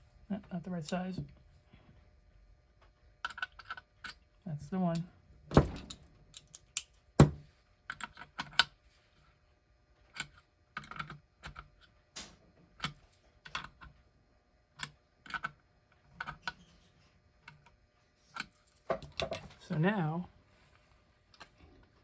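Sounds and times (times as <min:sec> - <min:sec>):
small clicks and taps of parts: 0:02.8 - 0:04.2, 0:05.8 - 0:07.0, 0:07.9 - 0:08.8, 0:10.1 - 0:14.0, 0:14.8 - 0:15.6.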